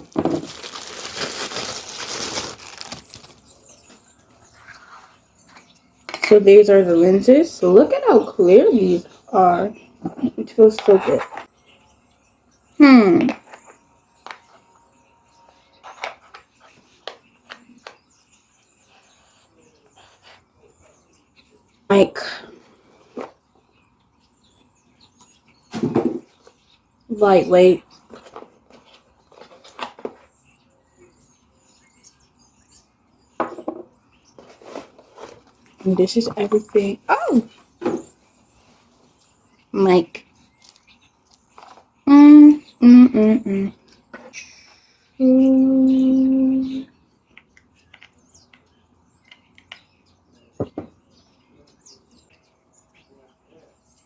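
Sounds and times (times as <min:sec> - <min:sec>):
handling camera parts and packaging: 0:00.0 - 0:03.5
faint high chirping: 0:00.0 - 0:54.0.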